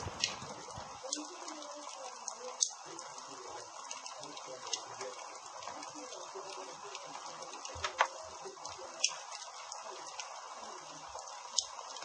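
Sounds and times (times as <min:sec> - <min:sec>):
sharp pops of burning wood: 0:00.0 - 0:01.1
campfire crackling: 0:00.0 - 0:01.4.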